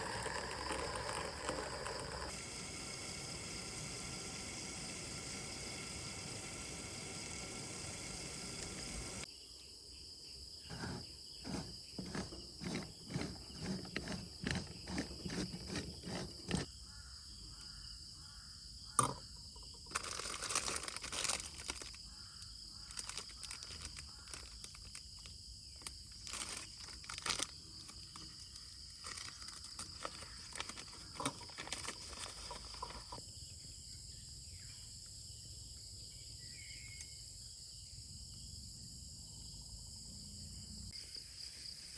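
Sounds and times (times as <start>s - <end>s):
crickets and insects chorus: 0.0s - 41.9s
crunching and rustling: 19.9s - 22.1s, 22.9s - 33.2s.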